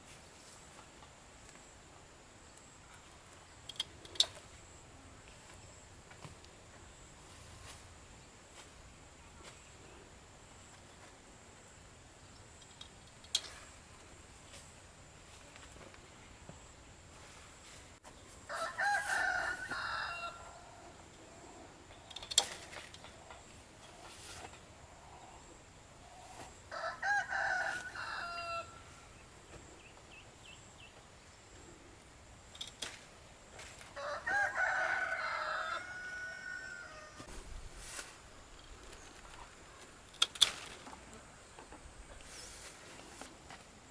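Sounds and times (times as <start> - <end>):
rooster crowing: 18.5 - 21.0, 26.7 - 28.9, 34.0 - 37.3.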